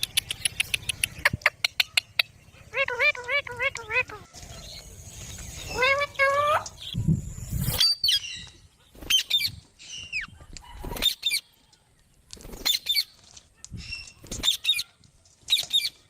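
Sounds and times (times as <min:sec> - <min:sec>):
parrots squawking: 0:00.4 - 0:04.8, 0:05.6 - 0:07.0.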